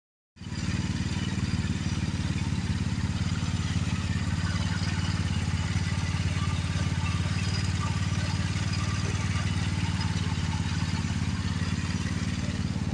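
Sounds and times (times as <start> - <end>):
small engine running steadily: 0.4 - 12.9.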